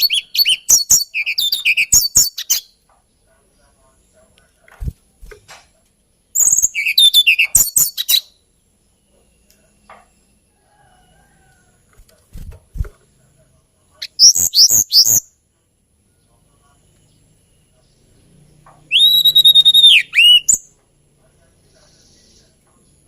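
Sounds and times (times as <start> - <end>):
flycatcher singing: 6.4 - 10.5, 16.2 - 20.8.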